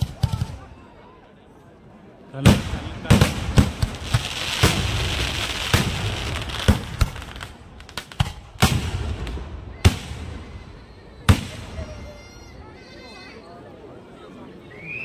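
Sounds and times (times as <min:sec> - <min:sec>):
firework bangs: 0:02.4 - 0:10.6, 0:11.3 - 0:12.1
fireworks crackling: 0:02.5 - 0:10.6.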